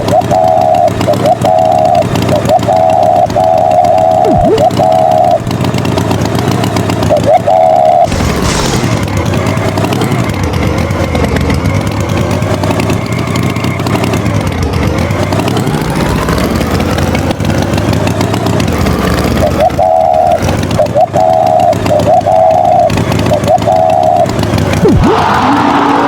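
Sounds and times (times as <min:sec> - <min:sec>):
loud held tone: 0:00.0 - 0:05.8, 0:06.8 - 0:10.3, 0:18.3 - 0:26.0
vehicle engine running: 0:00.0 - 0:26.0.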